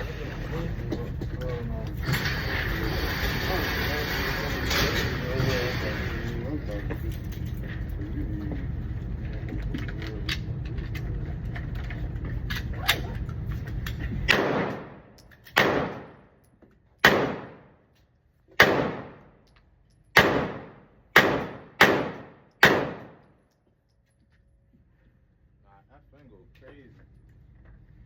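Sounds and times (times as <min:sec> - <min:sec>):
pistol shots echoing: 0:14.3 - 0:16.3, 0:17.0 - 0:17.8, 0:18.6 - 0:19.4, 0:20.2 - 0:23.3.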